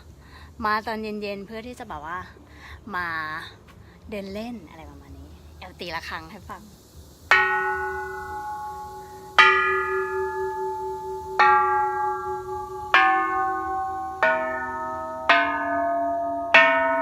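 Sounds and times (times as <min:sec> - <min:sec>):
temple bells ringing: 0:07.3 - 0:17.0.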